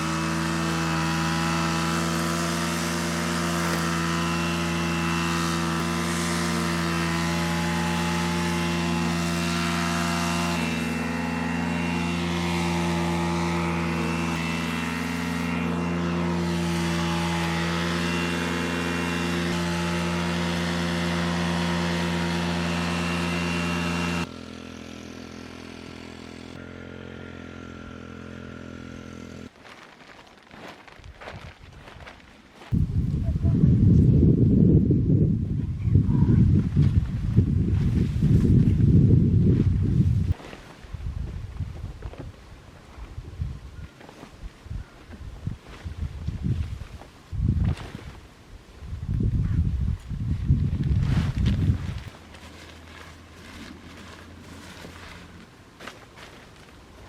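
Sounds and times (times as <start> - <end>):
petrol strimmer engine running: 0.0 - 29.5, 50.7 - 57.0.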